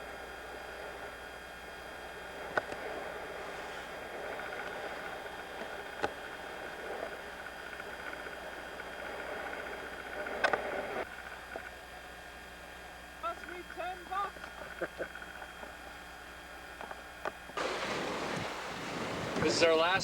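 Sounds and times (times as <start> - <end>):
wind: 0.0 - 20.0
water rushing: 17.6 - 20.0.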